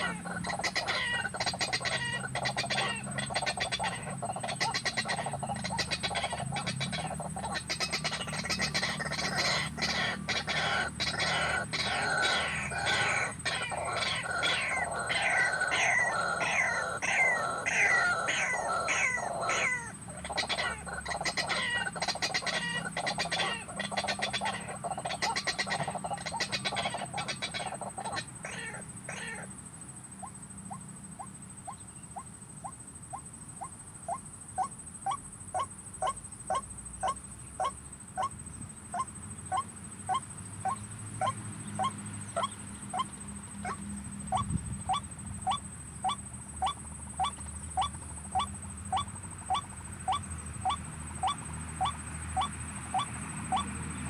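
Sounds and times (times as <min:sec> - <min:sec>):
waterhens croaking calls: 0:00.0 - 0:29.5, 0:39.0 - 0:54.0.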